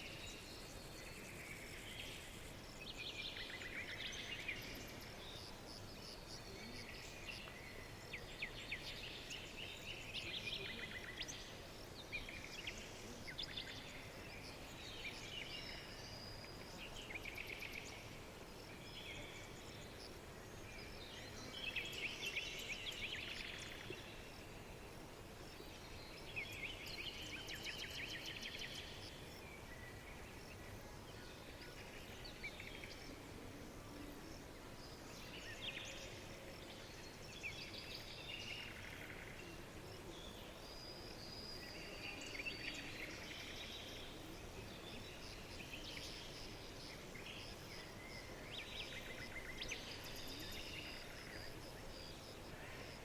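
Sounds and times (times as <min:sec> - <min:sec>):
faint background hiss: 0:00.0 - 0:53.0
songbirds chirping and twittering: 0:00.0 - 0:53.0.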